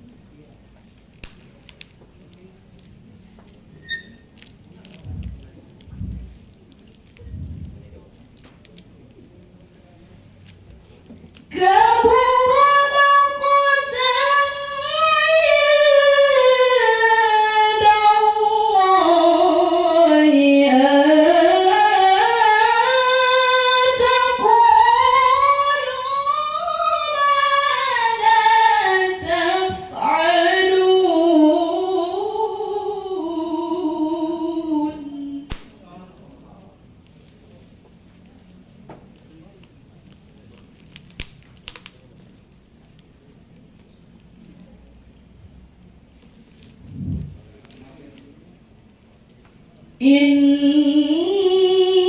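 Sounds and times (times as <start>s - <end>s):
woman reciting melodically: 11.4s - 35.5s, 50.0s - 52.0s.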